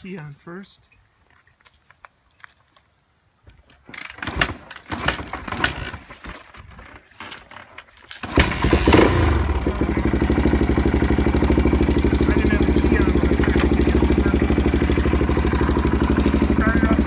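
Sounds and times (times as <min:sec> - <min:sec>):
motorcycle engine cranking: 0:03.5 - 0:17.0
motorcycle engine idling: 0:08.2 - 0:17.0.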